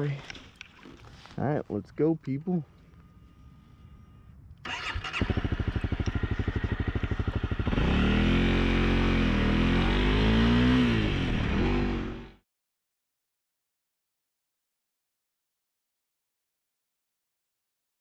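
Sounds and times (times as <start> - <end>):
motorcycle engine idling and revving: 4.6 - 12.4.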